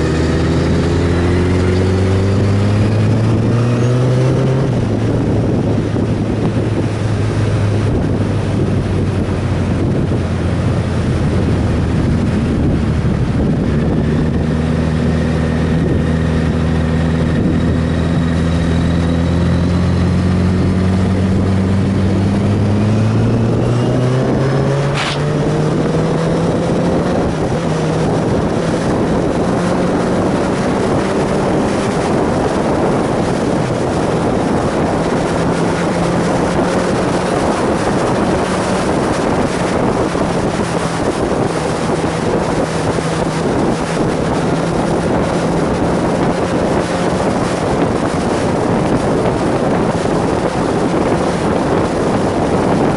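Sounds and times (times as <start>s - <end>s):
vehicle engine running: 0.0s - 52.9s
wind noise on microphone: 0.0s - 52.9s
short click: 24.9s - 25.3s.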